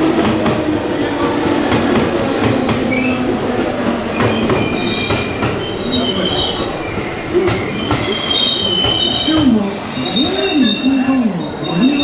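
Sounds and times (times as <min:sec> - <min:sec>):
train rumble with clatter: 0:00.0 - 0:10.8
train wheels squealing: 0:02.9 - 0:03.3, 0:04.0 - 0:12.0.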